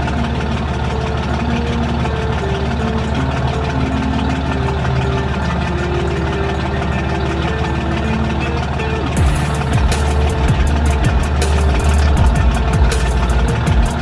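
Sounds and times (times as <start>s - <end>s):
engine chugging steadily: 0.0s - 14.0s.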